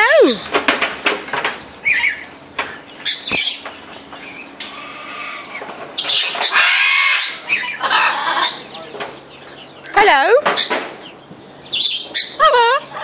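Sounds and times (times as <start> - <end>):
macaw squawking and clicking: 1.5 - 9.1.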